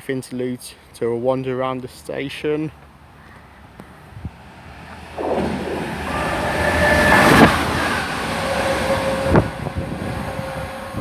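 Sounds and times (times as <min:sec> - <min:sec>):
freight train rumbling past: 0:04.4 - 0:11.0.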